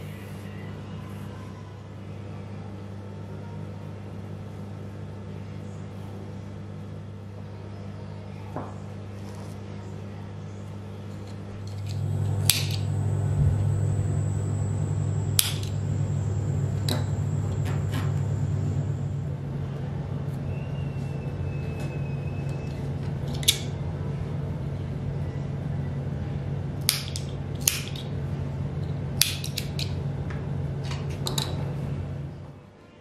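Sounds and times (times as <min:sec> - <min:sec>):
low electrical hum: 0:11.2 - 0:32.7
faint high whine: 0:11.6 - 0:22.8
sharp clicks: 0:11.7 - 0:19.0.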